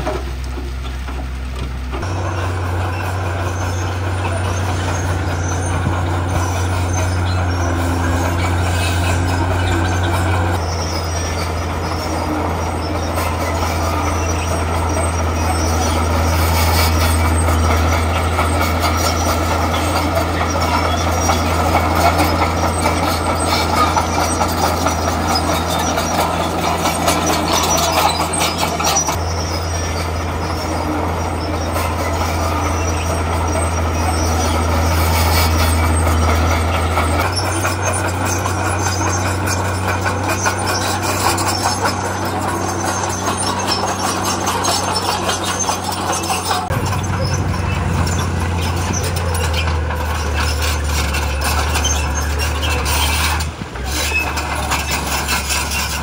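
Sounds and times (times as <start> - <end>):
bulldozer diesel engine running: 0.0 - 56.0
tracks and rock clattering: 12.5 - 56.0.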